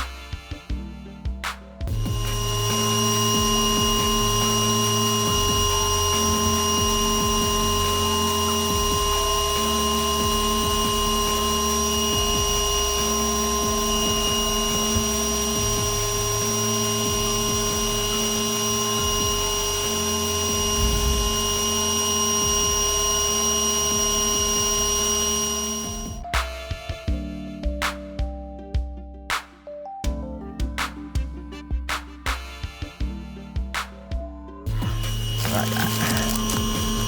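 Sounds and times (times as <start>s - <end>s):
vacuum motor whining: 35.1s - 37.0s.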